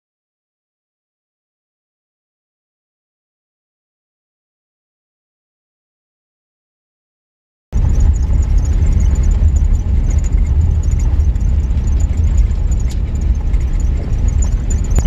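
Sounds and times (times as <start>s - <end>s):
vehicle engine and road noise: 7.8s - 15.0s.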